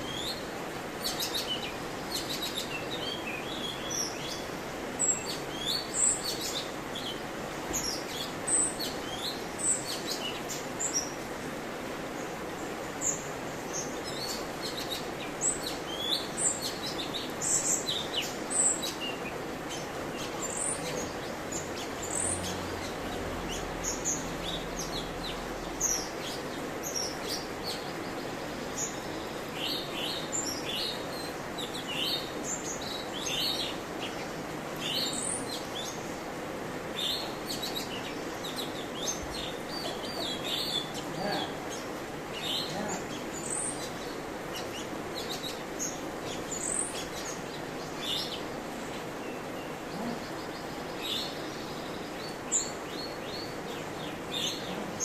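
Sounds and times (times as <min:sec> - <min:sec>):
steady background hiss: 0:00.0 - 0:55.0
bird chirping: 0:36.9 - 0:55.0.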